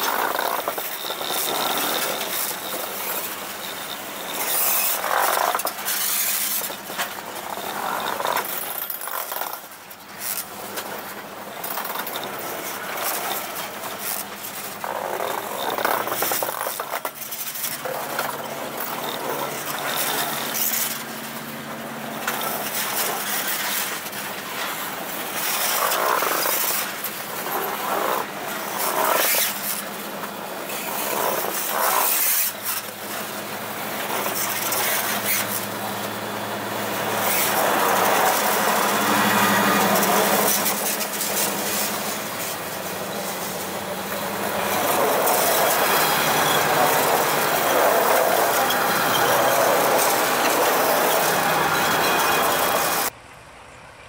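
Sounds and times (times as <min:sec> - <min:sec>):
train wheels clacking on rails: 0:00.0 - 0:21.2, 0:36.9 - 0:53.1
diesel locomotive engines: 0:00.0 - 0:54.0.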